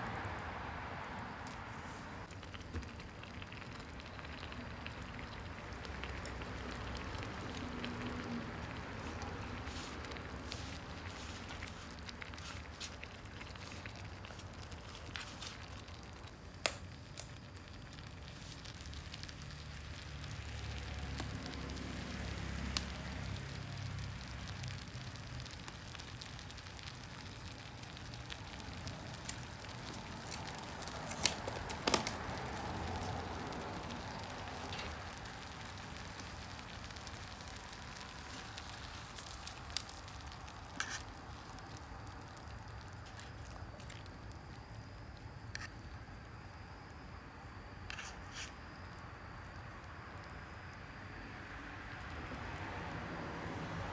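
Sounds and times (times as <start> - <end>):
fire crackling and popping: 0.0 - 53.7.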